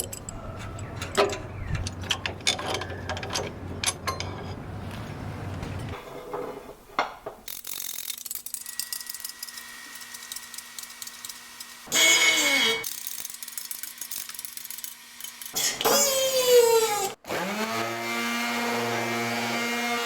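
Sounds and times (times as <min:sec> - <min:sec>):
ratchet wrench clicking: 0:07.5 - 0:11.8, 0:12.8 - 0:15.6
power tool whirring: 0:07.5 - 0:20.0.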